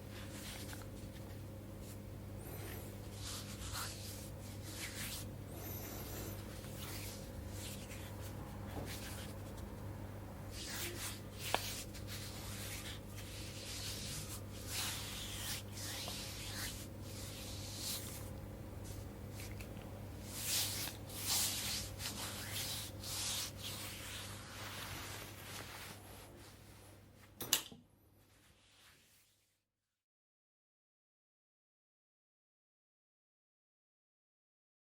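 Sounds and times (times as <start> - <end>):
steady low hum: 0.0 - 28.2
hands rubbing oiled skin: 2.6 - 9.9, 10.5 - 26.6.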